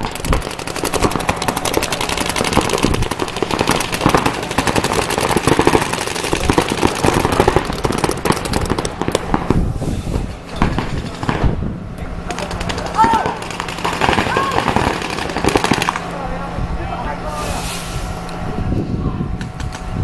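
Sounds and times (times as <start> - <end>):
rapid gunfire: 0.0 - 9.7, 10.6 - 11.6, 12.3 - 16.1
voices shouting: 12.3 - 17.3.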